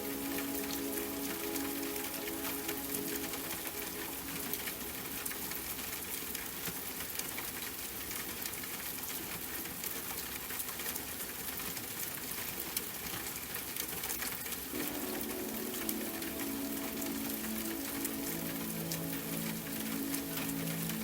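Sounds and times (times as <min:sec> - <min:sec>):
steady rain: 0:00.0 - 0:21.0
droplets ticking: 0:14.7 - 0:21.0.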